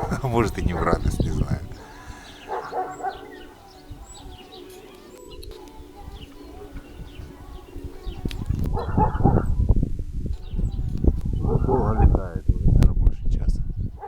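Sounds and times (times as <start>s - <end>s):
wind buffeting microphone: 0.0s - 4.6s, 5.8s - 14.0s
pigeons cooing: 0.0s - 9.6s, 11.4s - 12.2s
small birds chirping: 0.0s - 9.7s, 10.3s - 12.4s, 13.5s - 14.0s.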